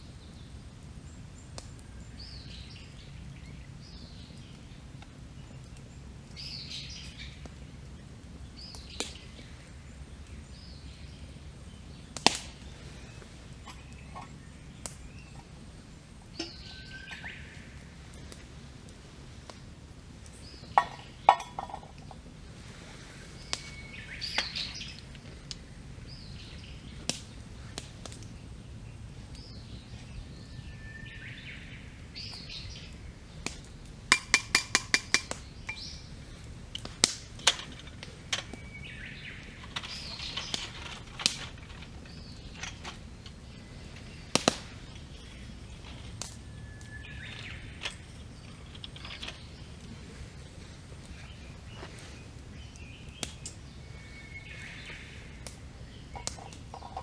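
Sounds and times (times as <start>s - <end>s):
wood fire crackling and popping: 0.0s - 57.0s
songbird whistling phrase: 30.5s - 31.7s.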